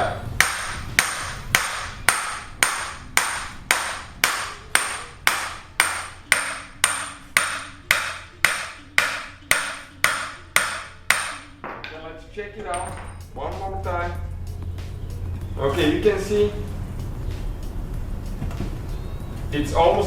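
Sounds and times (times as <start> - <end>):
hammer ringing on metal socket: 12.7 - 13.3.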